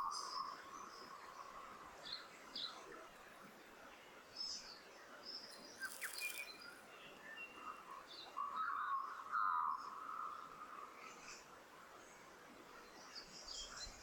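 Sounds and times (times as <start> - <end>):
high bird chirps: 5.8 - 6.5.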